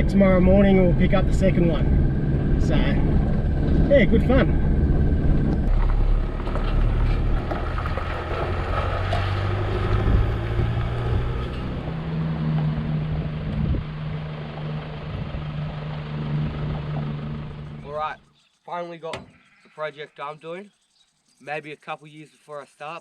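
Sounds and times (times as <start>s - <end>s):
road and wind noise: 0.0s - 18.1s
vehicle engine running: 0.0s - 18.2s.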